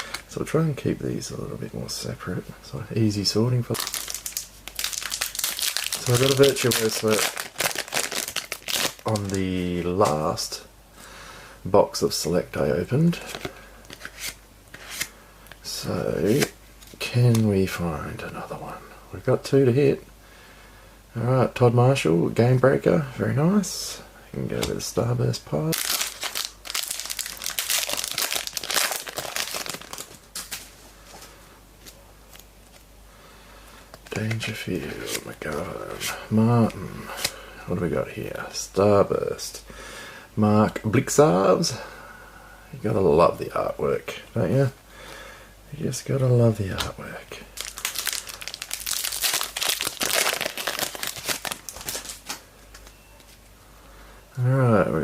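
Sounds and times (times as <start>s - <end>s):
card pack wrapper tearing and crinkling: 3.7s - 9.6s, 25.7s - 30.7s, 47.6s - 52.4s.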